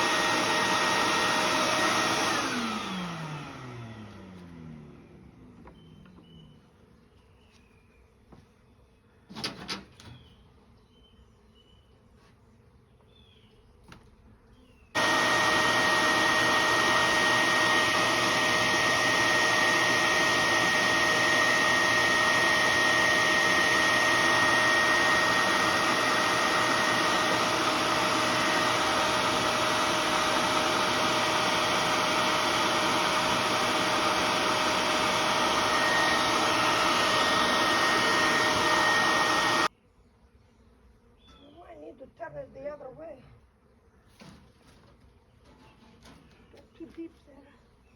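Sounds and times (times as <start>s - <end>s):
vacuum motor whining: 0.0s - 6.5s, 15.0s - 39.7s.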